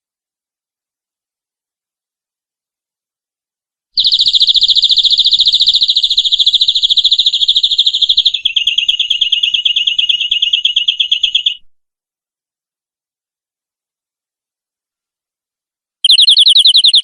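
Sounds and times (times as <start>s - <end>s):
canary trilling: 4.0s - 11.6s, 16.0s - 17.0s.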